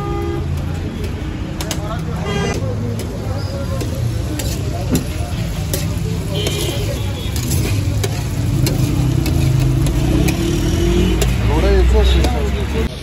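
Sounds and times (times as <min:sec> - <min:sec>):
liver sizzling on a griddle: 0:02.7 - 0:13.0
metal spatula clicking on griddle: 0:02.9 - 0:12.6.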